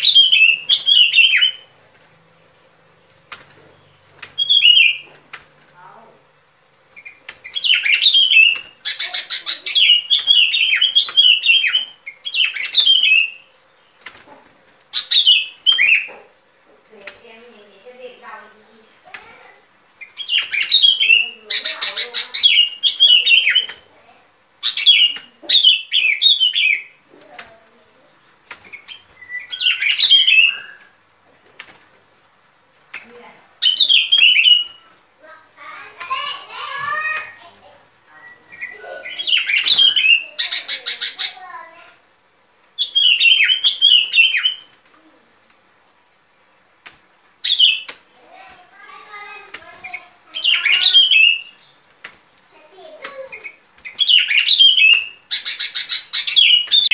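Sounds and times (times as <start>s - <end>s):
bulbul singing chirping phrases: 0.0s - 1.7s, 3.8s - 5.1s, 7.0s - 13.6s, 20.0s - 23.9s, 24.6s - 27.0s, 27.8s - 31.0s, 33.6s - 41.8s, 48.8s - 51.8s, 53.0s - 56.9s.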